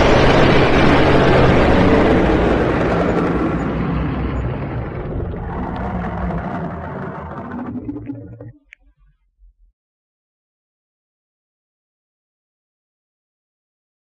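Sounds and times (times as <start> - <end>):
dragon roar: 0.1 - 8.5.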